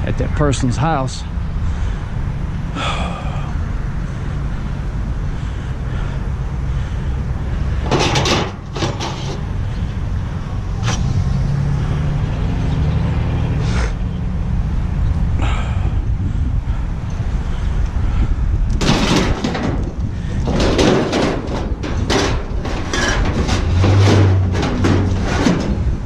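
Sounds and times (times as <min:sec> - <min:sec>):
truck engine and road rumble: 0:00.0 - 0:26.0
sharp rattles or knocks: 0:07.7 - 0:09.8, 0:18.8 - 0:26.0.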